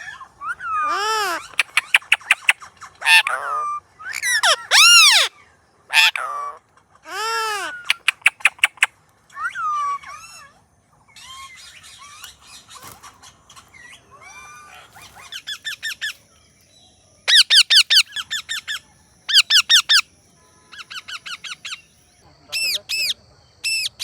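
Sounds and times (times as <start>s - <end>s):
parakeet warbling chatter: 0.0s - 5.3s, 5.9s - 16.1s, 17.3s - 20.0s
parakeet shrill repeated calls: 0.0s - 16.2s, 17.3s - 24.0s.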